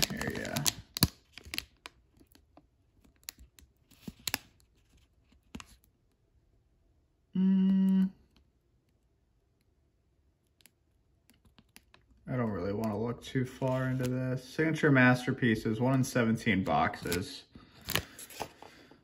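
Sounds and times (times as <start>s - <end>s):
trading cards being handled: 0.0s - 6.1s, 10.5s - 18.8s.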